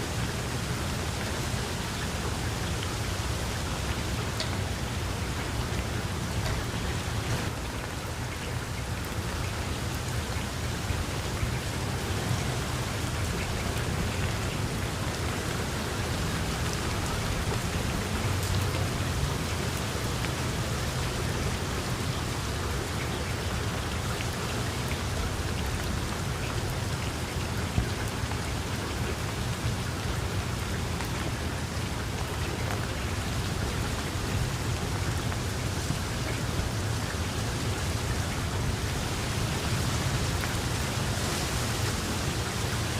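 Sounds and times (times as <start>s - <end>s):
heavy rain hissing: 0.0s - 42.9s
rain drop ticks: 2.0s - 38.9s.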